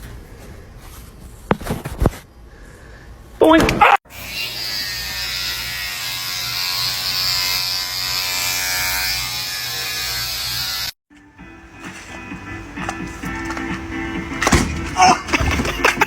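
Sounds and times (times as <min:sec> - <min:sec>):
loud electric buzz: 0:04.1 - 0:11.0
quiet music: 0:11.1 - 0:16.0.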